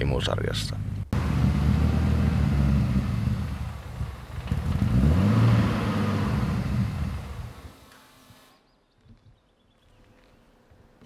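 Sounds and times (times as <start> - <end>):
car engine high idle and revving: 0.6 - 8.5.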